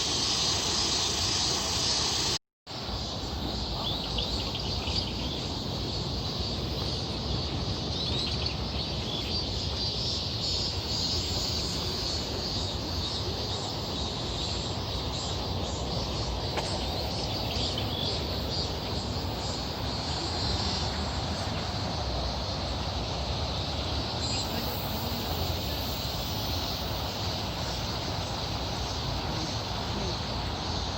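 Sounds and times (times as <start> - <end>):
insect buzz: 0.0 - 7.4
continuous rushing noise: 0.0 - 30.9.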